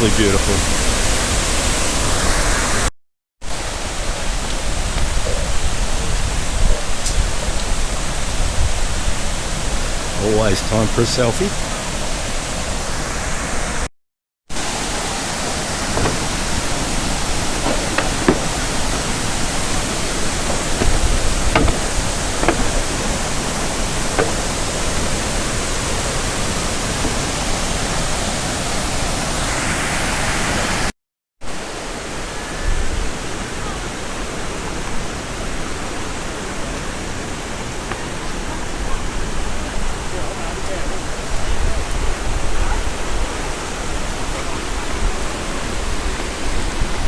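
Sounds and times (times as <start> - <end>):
waterfall rushing: 0.0 - 2.8, 14.6 - 30.9.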